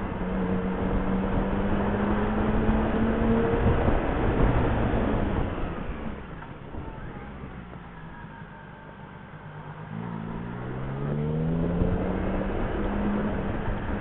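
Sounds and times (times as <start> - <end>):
wind rush on microphone: 0.1 - 6.8.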